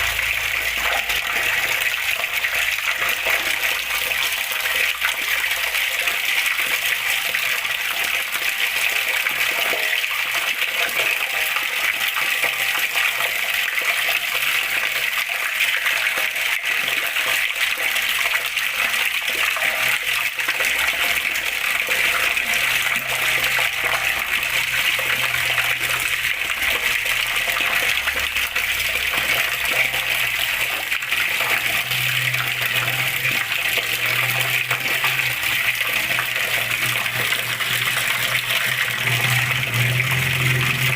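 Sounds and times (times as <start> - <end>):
water running and splashing: 0.0 - 40.9.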